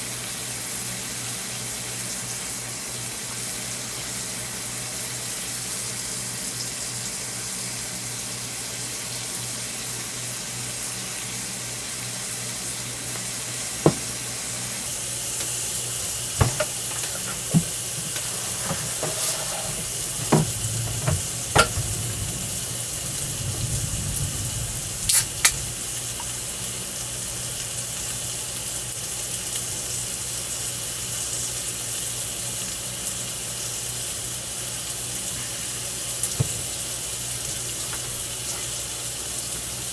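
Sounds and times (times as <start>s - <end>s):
meat sizzling on a grill: 14.8s - 39.9s.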